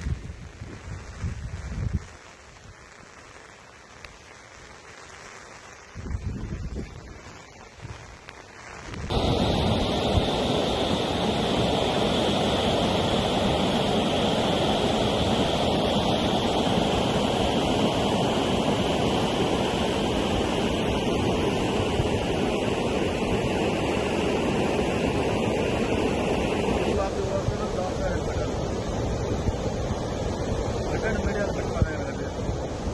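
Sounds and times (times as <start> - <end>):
floodwater rushing: 9.1 - 32.9.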